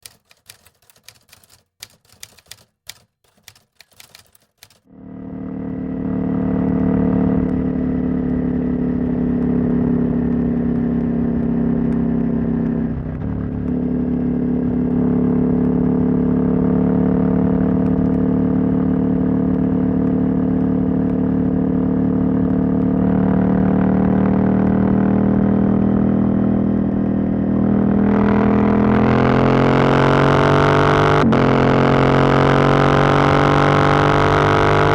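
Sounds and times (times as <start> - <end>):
sharp clicks and knocks: 0.0 - 4.9.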